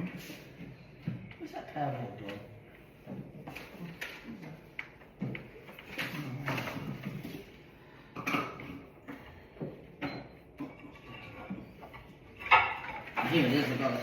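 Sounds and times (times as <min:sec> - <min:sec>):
knocks and clatters in cupboards: 0:05.0 - 0:07.4, 0:08.2 - 0:13.9.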